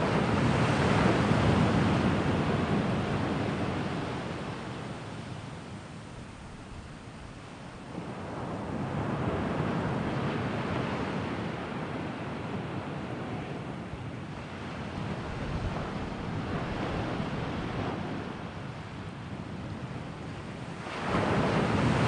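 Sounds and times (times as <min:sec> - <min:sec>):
sea waves washing onto shore: 0:00.0 - 0:22.0
wind on microphone: 0:00.0 - 0:22.0.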